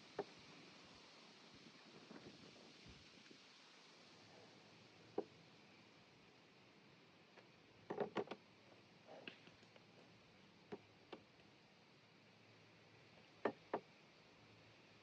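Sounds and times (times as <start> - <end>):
faint clicks and taps: 10.7 - 11.5.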